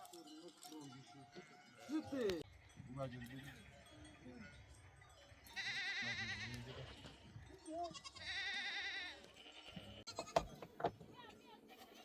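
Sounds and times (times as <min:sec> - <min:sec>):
livestock bleating: 0:05.5 - 0:07.2, 0:07.8 - 0:10.4.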